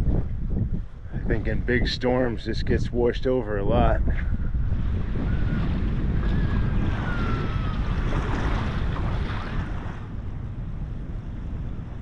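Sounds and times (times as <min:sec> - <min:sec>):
wind buffeting microphone: 0:00.0 - 0:12.0
surf washing on beach: 0:04.6 - 0:10.2.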